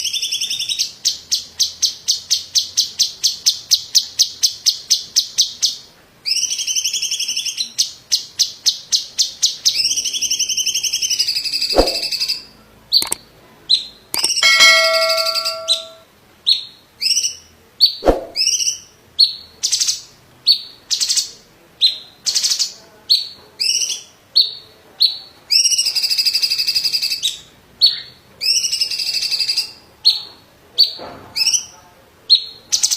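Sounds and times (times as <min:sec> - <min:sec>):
sharp clicks: 0:14.2 - 0:14.4.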